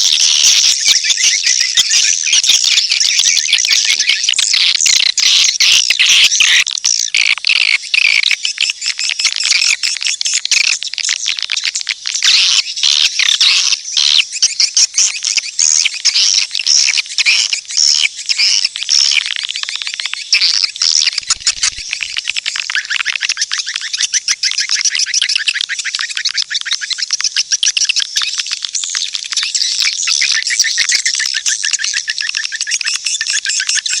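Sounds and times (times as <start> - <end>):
swiftlets twittering: 17.0 - 32.6.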